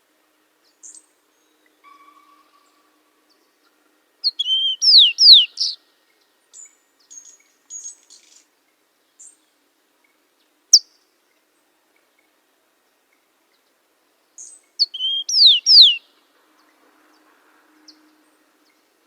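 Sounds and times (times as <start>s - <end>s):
faint high bird chirps: 0.7s - 3.5s, 4.2s - 5.8s, 14.4s - 16.1s
songbird whistled notes: 4.2s - 5.8s, 14.4s - 16.0s.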